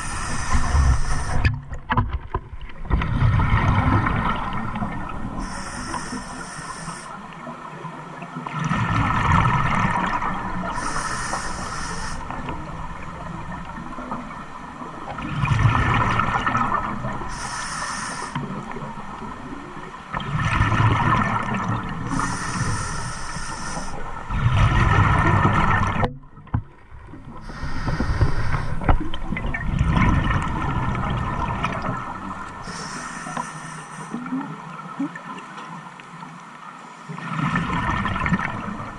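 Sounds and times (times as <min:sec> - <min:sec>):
hiss: 0:00.0 - 0:01.5, 0:05.4 - 0:07.2, 0:10.7 - 0:12.3, 0:17.3 - 0:18.5, 0:22.1 - 0:24.0, 0:27.4 - 0:28.9, 0:32.6 - 0:34.2.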